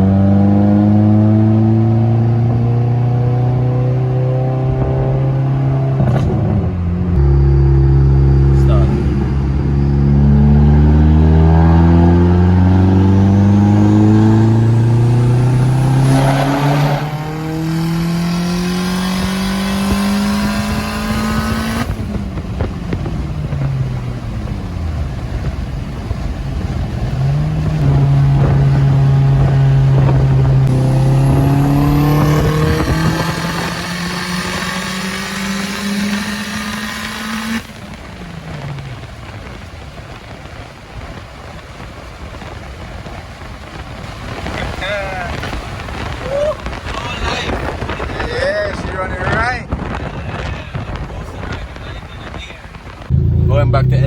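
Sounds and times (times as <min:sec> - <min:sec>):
turbocharged car engine revving: 0:00.0 - 0:41.1, 0:44.3 - 0:54.0.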